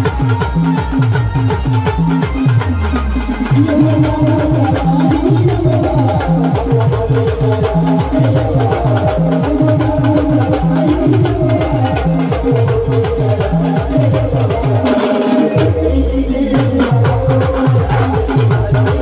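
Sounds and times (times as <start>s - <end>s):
fast drum beat: 0.0s - 19.0s
folk dance music: 0.0s - 19.0s.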